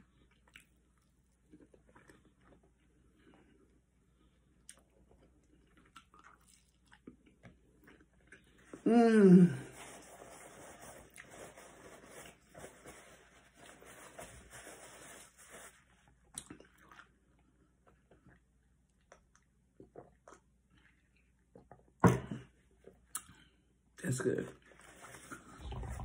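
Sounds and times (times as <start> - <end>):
person chewing: 0.1 - 3.3, 4.6 - 8.8, 25.6 - 26.0.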